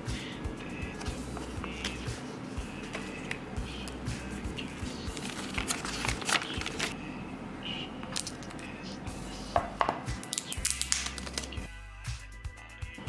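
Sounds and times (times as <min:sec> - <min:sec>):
packaging rustling: 0:04.6 - 0:07.0, 0:10.3 - 0:11.6.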